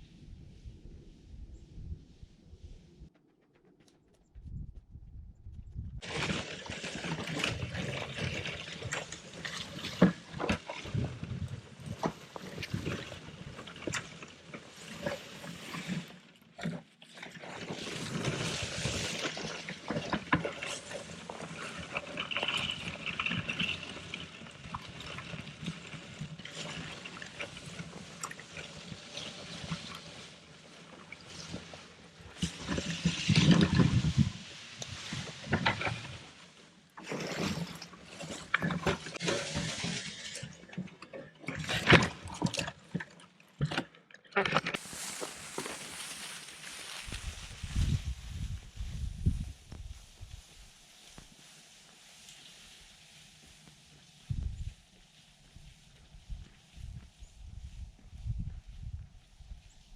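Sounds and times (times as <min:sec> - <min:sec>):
branches rustling and crackling: 0:05.8 - 0:16.4, 0:17.4 - 0:43.2, 0:44.7 - 0:59.9
footsteps: 0:44.7 - 0:59.3.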